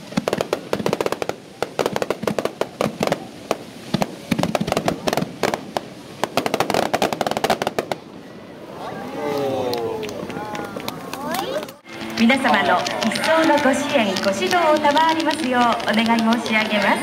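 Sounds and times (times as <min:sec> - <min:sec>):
fireworks popping and crackling: 0:00.0 - 0:08.1, 0:10.0 - 0:17.0
fireworks bangs: 0:00.0 - 0:08.8, 0:10.0 - 0:17.0.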